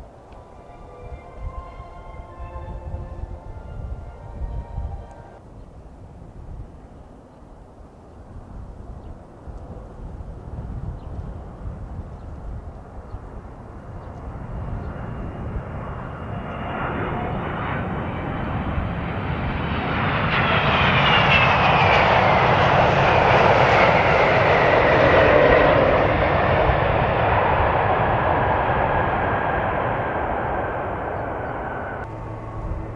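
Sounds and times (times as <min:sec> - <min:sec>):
jet engine whine: 0:00.0 - 0:05.4, 0:09.0 - 0:32.9
jet airliner passing: 0:00.0 - 0:32.9.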